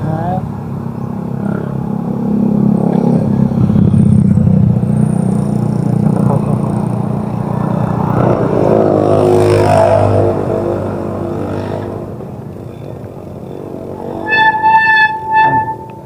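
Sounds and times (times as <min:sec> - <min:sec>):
motorcycle engine running: 0:02.8 - 0:08.6.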